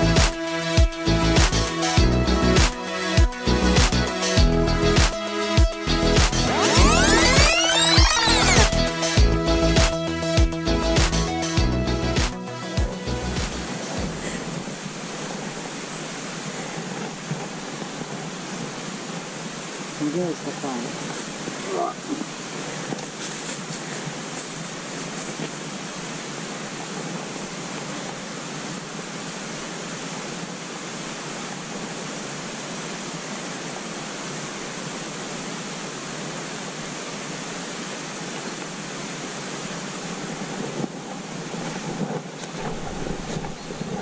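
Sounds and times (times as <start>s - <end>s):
steady rushing noise: 2.6s - 44.0s
soft bumps: 40.4s - 44.0s.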